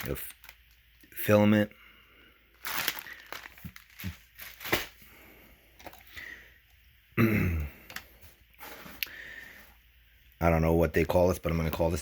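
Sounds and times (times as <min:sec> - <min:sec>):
plastic and cardboard rustling: 0:00.0 - 0:01.1, 0:02.5 - 0:05.1.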